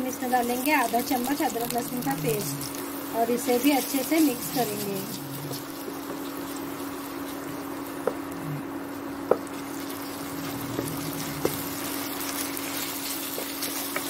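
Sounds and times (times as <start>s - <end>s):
steady low hum: 0.0s - 14.0s
vegetables sizzling in hot oil: 0.0s - 14.0s.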